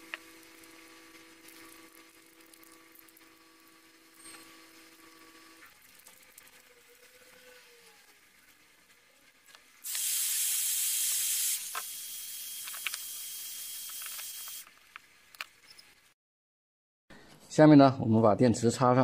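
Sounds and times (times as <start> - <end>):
faint high whine: 0.0 - 9.9
air hissing: 9.8 - 14.6.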